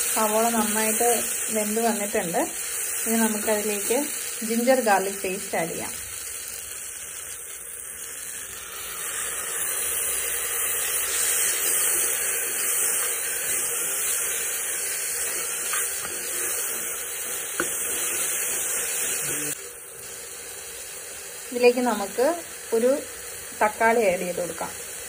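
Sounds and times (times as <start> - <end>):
paste sizzling in hot oil: 0.0 - 25.0
spatula stirring: 9.0 - 19.3.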